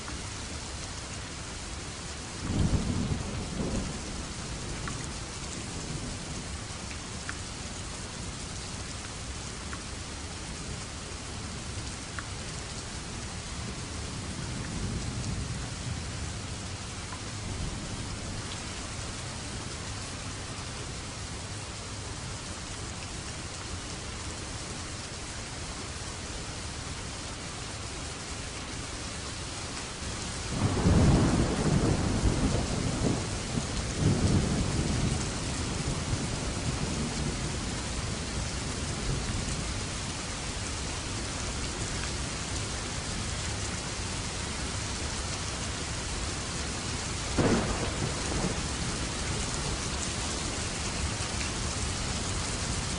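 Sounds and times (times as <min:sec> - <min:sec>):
steady rain: 0:00.0 - 0:52.9
thunder rumbling: 0:30.5 - 0:37.4, 0:47.4 - 0:52.4.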